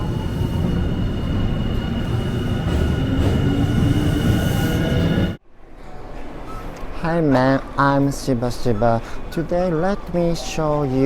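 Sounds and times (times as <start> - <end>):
train rumbling: 0.0 - 5.4.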